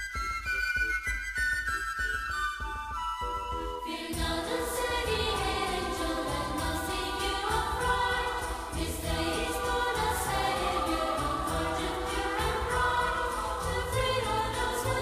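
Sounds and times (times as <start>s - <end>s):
choir-like singing over a beat: 3.8s - 15.0s.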